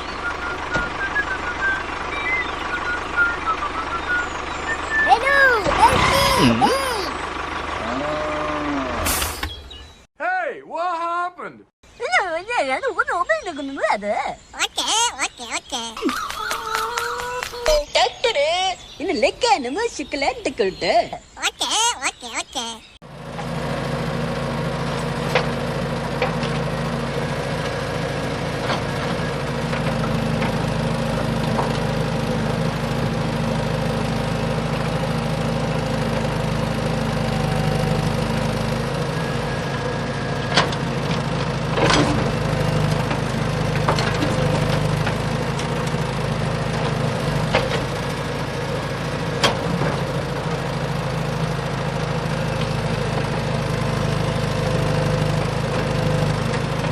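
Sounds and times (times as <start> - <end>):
small engine idling: 0.0 - 10.1, 23.0 - 56.9.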